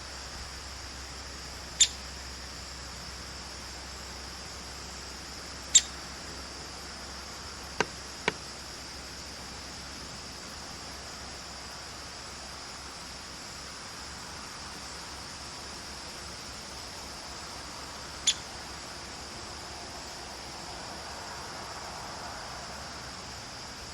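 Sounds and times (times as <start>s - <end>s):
steady hiss: 0.0s - 23.9s
woodpecker calls: 1.8s - 2.0s, 5.7s - 6.1s, 18.2s - 18.6s.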